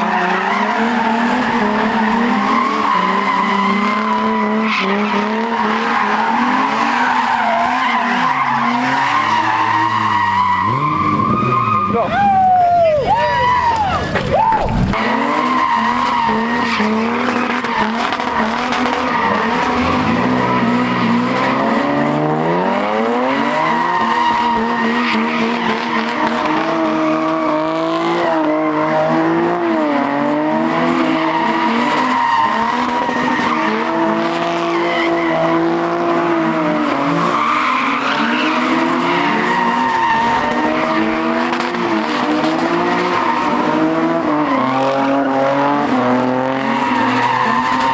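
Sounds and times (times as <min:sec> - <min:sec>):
car engine revving hard: 0:00.0 - 0:12.1, 0:14.8 - 0:47.9
tyres squealing: 0:00.0 - 0:22.0, 0:30.8 - 0:45.4, 0:46.6 - 0:47.9.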